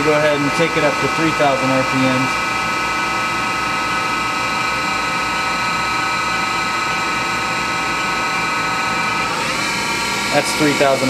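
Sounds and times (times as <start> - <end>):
machine spindle whine: 0.0 - 11.0.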